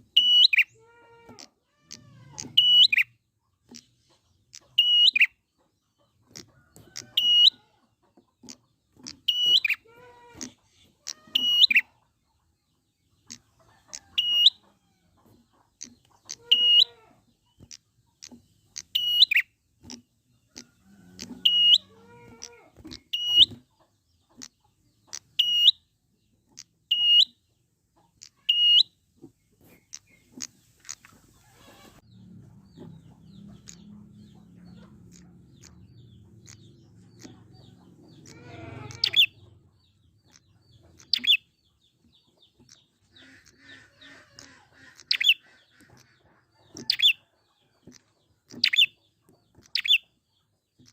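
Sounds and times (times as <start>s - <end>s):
bird sharp high calls: 0.0s - 3.2s, 4.6s - 5.4s, 6.9s - 7.7s, 8.4s - 11.9s, 16.2s - 20.0s, 20.6s - 23.6s, 25.1s - 25.8s, 28.2s - 29.0s, 33.2s - 39.6s, 43.1s - 47.3s, 49.6s - 50.1s.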